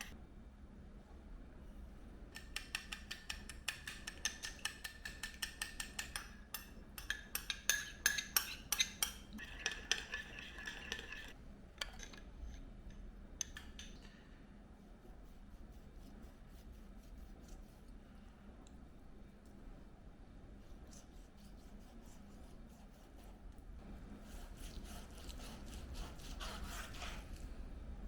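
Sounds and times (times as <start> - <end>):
metal utensil clinking on cookware: 4.1 - 12.6.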